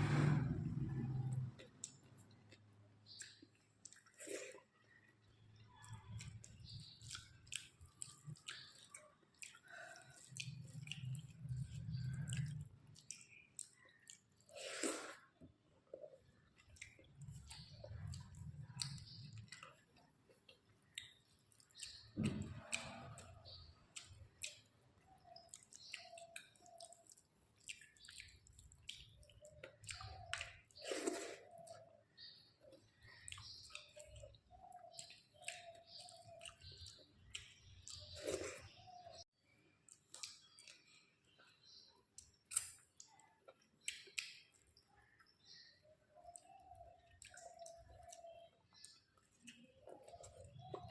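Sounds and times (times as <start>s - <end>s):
close chewing with wet smacks: 1.3s - 50.9s
lip smacks: 42.2s - 44.7s.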